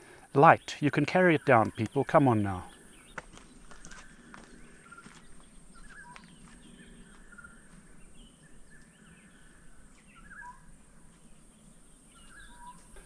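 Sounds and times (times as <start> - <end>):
light clicks: 1.6 - 2.0
faint bird chirps and whistles: 2.7 - 13.0.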